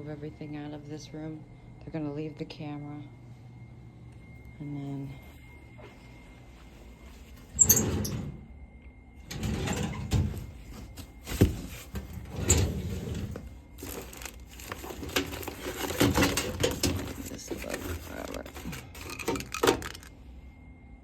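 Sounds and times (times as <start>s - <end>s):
rustling: 13.2s - 20.1s.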